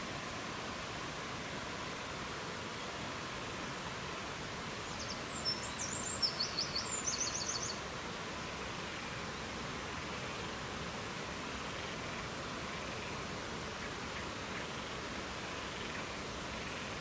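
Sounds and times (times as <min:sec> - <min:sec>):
songbird chirping and trilling: 0:04.9 - 0:07.8.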